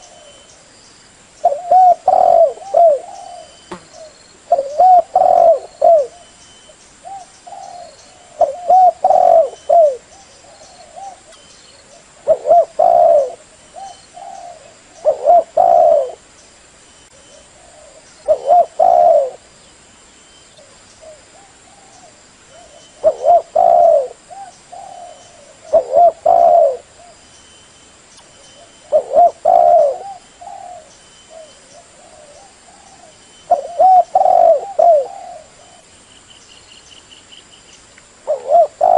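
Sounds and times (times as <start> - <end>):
dove cooing: 1.4 - 6.4, 7.0 - 16.2, 17.1 - 19.5, 20.6 - 27.2, 28.6 - 35.9, 38.2 - 38.9.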